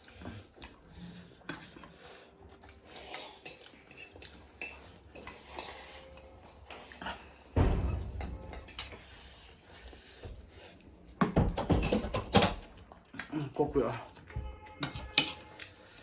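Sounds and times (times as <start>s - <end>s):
utensils clinking on dishes: 2.8s - 10.2s, 11.2s - 13.6s, 14.3s - 16.0s
loud knock: 7.6s - 9.3s.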